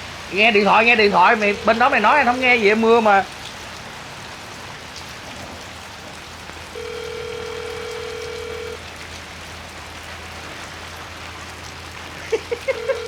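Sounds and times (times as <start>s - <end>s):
steady rain: 0.0s - 13.0s
phone ringback tone: 6.8s - 8.8s, 12.7s - 13.0s.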